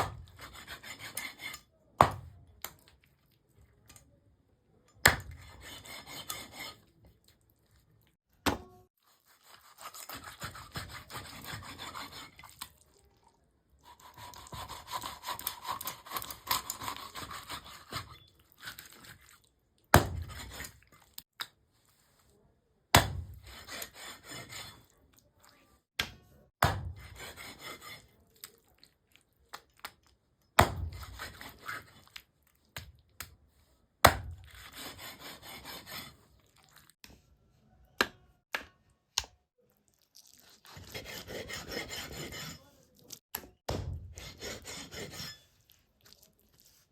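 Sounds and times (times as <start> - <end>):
knife sawing strokes: 0.0 - 1.7, 5.1 - 6.9, 9.1 - 12.6, 13.9 - 19.2, 20.0 - 20.8, 23.2 - 24.9, 26.6 - 28.2, 30.6 - 32.1, 34.1 - 36.3, 40.6 - 43.2, 44.0 - 45.6.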